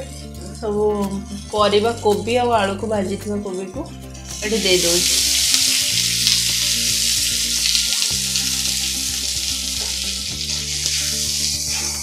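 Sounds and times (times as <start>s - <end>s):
vegetables sizzling in hot oil: 4.2s - 12.0s
steel spatula stirring: 9.8s - 12.0s.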